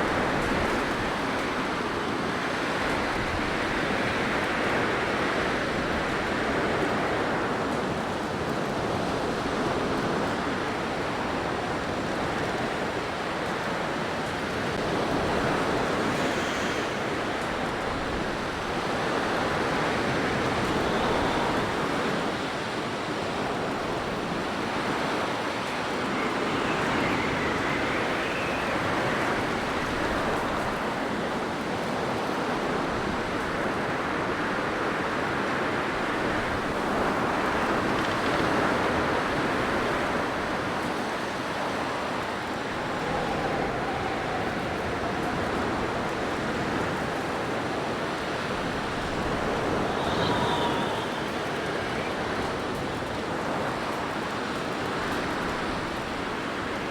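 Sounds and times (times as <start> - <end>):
blizzard wind blowing: 0.0 - 56.9
faint high whistle: 25.8 - 30.0, 49.4 - 52.5.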